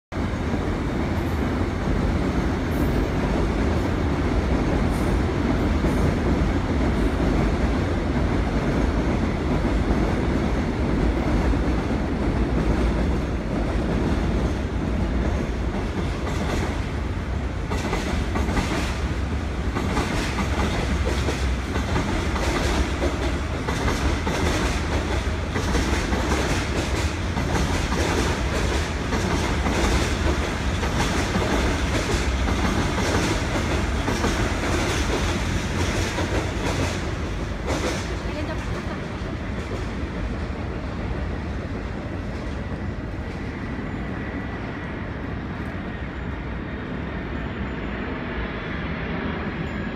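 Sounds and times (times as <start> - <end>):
electric train rumbling: 0.1 - 49.9
wheels clacking over rail joints: 17.5 - 40.0.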